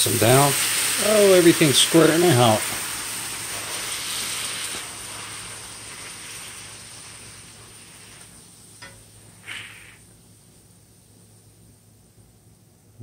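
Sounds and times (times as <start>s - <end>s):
burgers sizzling in a frying pan: 0.0s - 10.2s.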